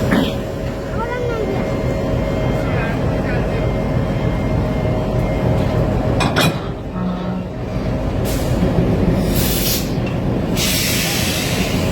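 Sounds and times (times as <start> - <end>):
diesel locomotive rumbling: 0.0 - 11.9
short air hisses: 9.2 - 10.0, 10.6 - 11.9.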